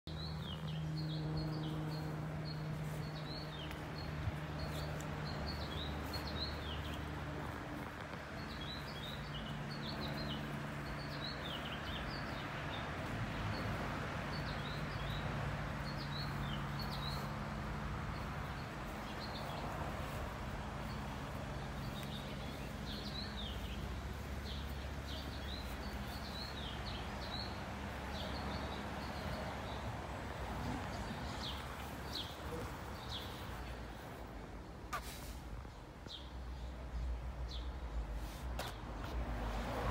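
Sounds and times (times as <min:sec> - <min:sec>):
songbirds chirping: 0:00.1 - 0:39.9.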